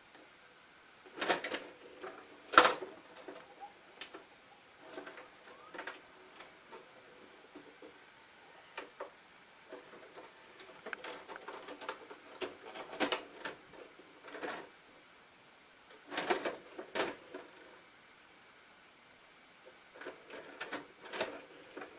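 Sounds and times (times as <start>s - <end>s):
sharp clicks and rattles: 9.7s - 14.7s.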